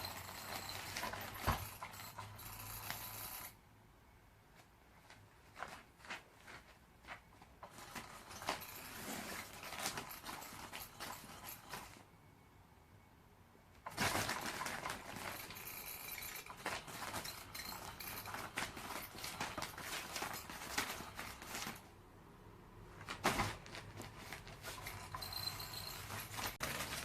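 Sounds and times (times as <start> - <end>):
cat toy motor whirring: 0.0 - 3.6.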